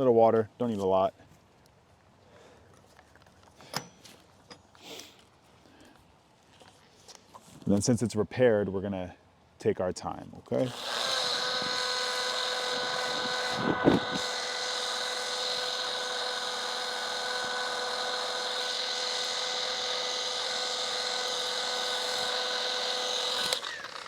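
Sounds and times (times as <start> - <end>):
electric stone polisher whine: 10.7 - 24.0.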